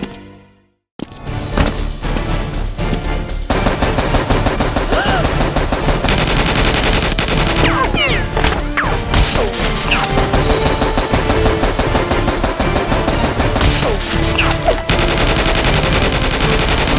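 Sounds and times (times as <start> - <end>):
background music: 0.0 - 16.9
automatic gunfire: 3.6 - 8.0, 14.9 - 16.9.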